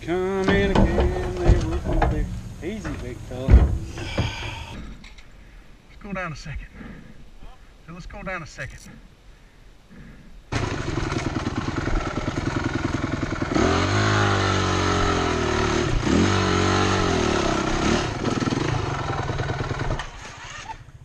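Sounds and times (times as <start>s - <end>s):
dirt bike engine revving: 10.5s - 21.0s.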